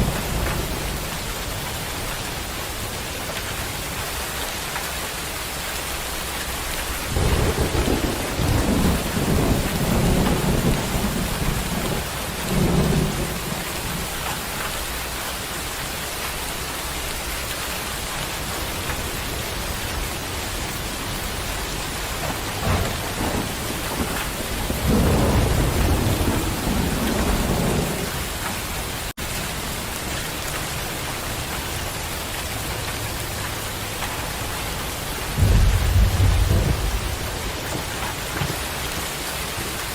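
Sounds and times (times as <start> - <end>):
thunder rolling: 0.0 - 2.9, 6.8 - 14.5, 18.7 - 29.1, 35.2 - 39.8
heavy rain hissing: 0.0 - 39.9.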